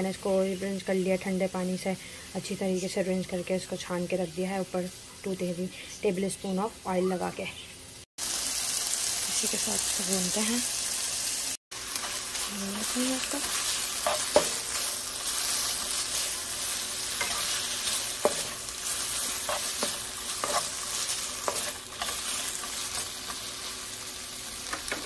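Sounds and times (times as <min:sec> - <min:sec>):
chicken sizzling in oil: 0:08.2 - 0:25.0
spatula scraping pan: 0:12.0 - 0:23.5.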